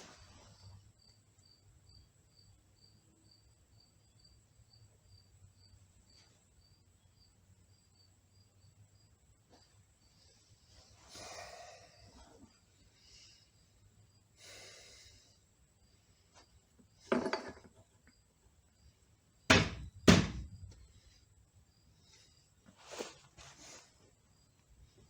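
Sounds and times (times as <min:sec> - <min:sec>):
heavy knocks on metal: 0:19.5 - 0:20.8.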